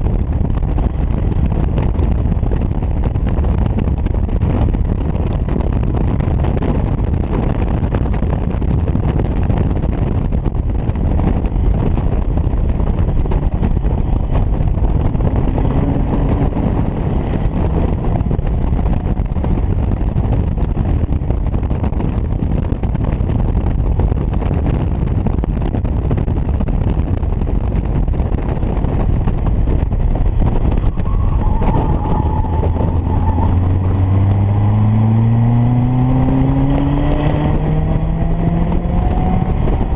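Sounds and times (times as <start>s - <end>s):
road noise: 0.0s - 39.9s
wind buffeting on microphone: 0.0s - 39.9s
car engine accelerating: 11.2s - 22.2s, 28.2s - 39.9s.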